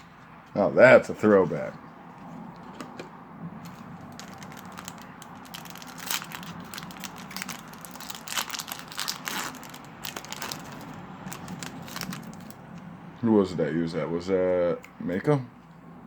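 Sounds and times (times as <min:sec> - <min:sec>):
foil wrapper crinkling and tearing: 0:03.6 - 0:12.6.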